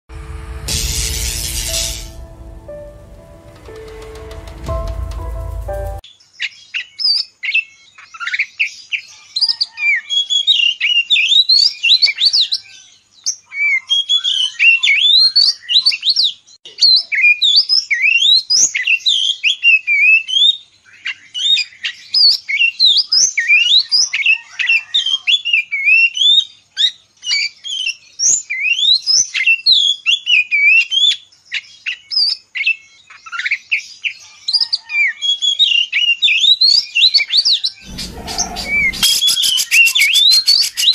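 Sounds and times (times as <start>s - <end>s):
bird singing loud whistled notes: 37.8s - 40.9s.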